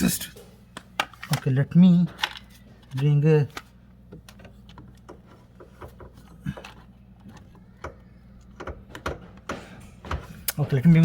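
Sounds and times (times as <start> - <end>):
objects being handled: 0.3 - 11.0.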